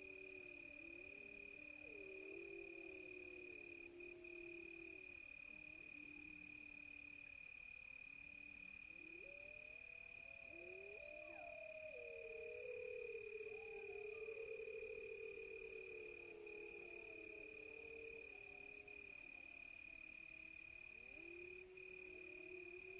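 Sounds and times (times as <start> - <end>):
cricket trill: 0.0 - 22.9
pulsing insect chirr: 0.0 - 22.9
wolves howling: 9.0 - 19.1.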